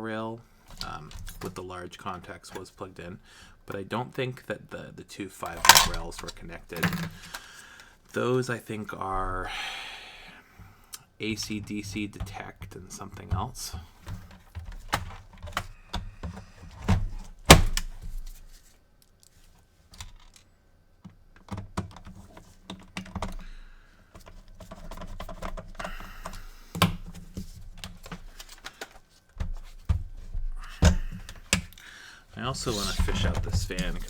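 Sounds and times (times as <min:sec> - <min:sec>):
plastic and metal parts clicking: 0:05.5 - 0:07.9, 0:19.9 - 0:23.6, 0:24.2 - 0:31.9, 0:32.6 - 0:34.0.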